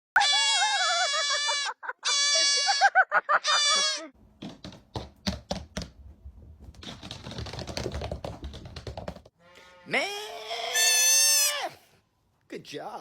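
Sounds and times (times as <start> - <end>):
baby goat bleating: 0.2 - 2.8, 3.4 - 4.1, 10.1 - 11.8
sharp knocks and clatter: 4.4 - 9.3.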